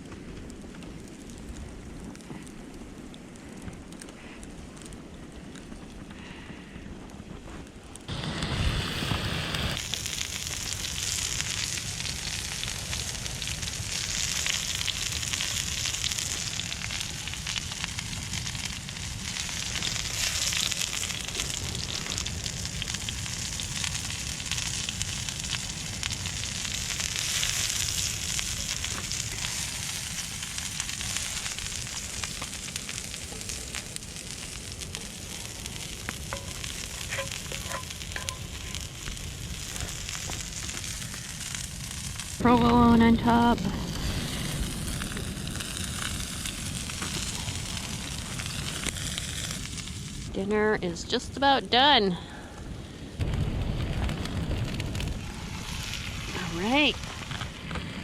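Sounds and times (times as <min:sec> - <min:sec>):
food sizzling in a pan: 0:08.1 - 0:50.4, 0:54.7 - 0:58.0.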